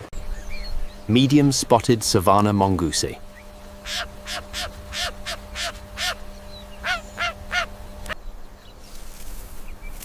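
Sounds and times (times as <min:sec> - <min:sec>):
steady low hum: 0:00.0 - 0:10.0
harsh animal calls: 0:03.3 - 0:07.8.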